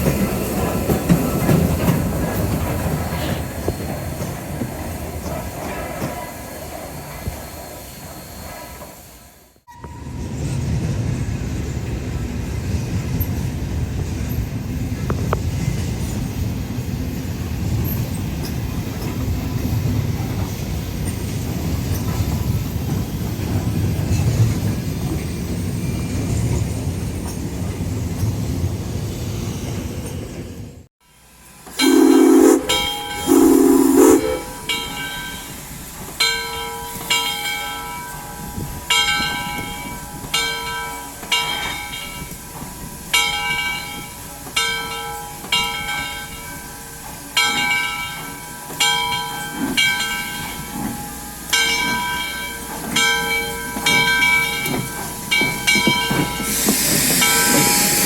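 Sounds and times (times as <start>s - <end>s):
train rumbling: 0.0s - 58.0s
steam hissing: 31.1s - 58.0s
steam locomotive whistle blasts: 31.2s - 35.6s, 53.8s - 58.0s
locomotive bell ringing: 31.2s - 58.0s.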